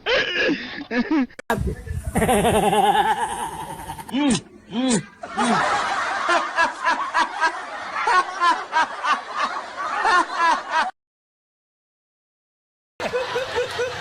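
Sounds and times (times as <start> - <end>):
high-pitched giggles: 2.0 - 5.7.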